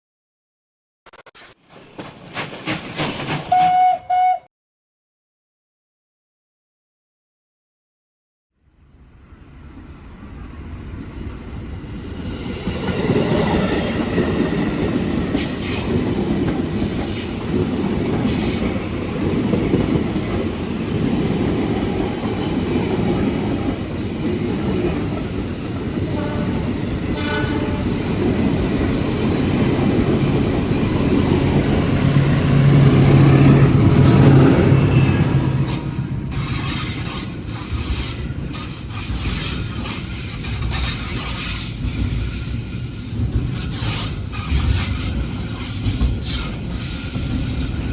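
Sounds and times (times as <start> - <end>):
freight train wagons rumbling: 1.6 - 4.4, 11.4 - 47.9
wheels clacking over rail joints: 1.7 - 4.0
high wheel squeal: 34.4 - 38.3.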